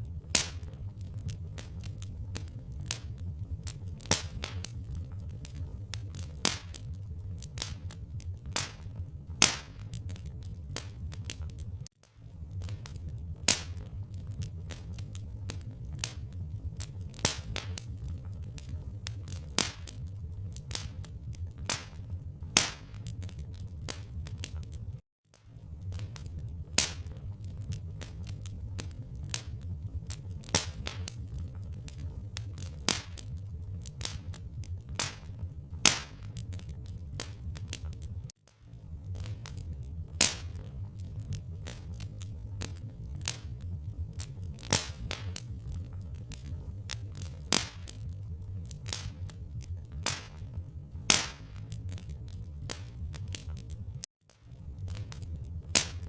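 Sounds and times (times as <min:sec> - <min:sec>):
loud pops from fire: 0:00.0 - 0:56.0
steady low rumble: 0:00.0 - 0:56.0
wood fire crackling: 0:00.0 - 0:56.0
sharp pops: 0:08.5 - 0:09.8, 0:22.6 - 0:23.0, 0:35.8 - 0:36.2, 0:47.5 - 0:47.9, 0:50.0 - 0:50.4, 0:51.1 - 0:51.6, 0:55.7 - 0:56.0.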